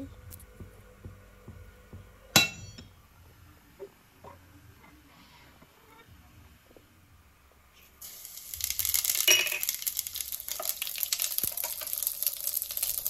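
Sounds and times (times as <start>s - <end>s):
onion sizzling in hot oil: 8.0s - 13.0s.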